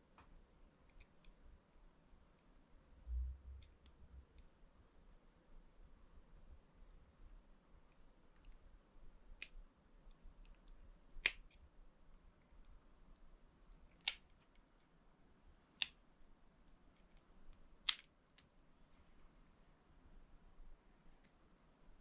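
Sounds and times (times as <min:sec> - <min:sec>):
scissors snipping wire mesh: 0:11.2 - 0:11.6, 0:17.9 - 0:18.1.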